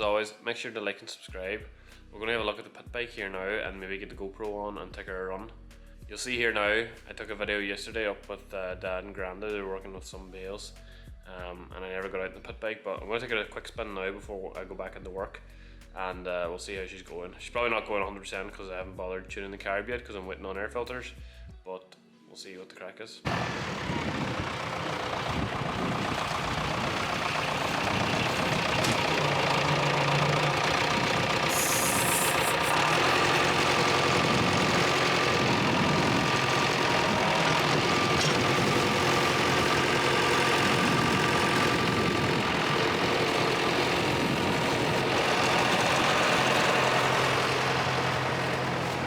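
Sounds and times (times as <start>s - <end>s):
pit bike engine running: 23.3s - 49.0s.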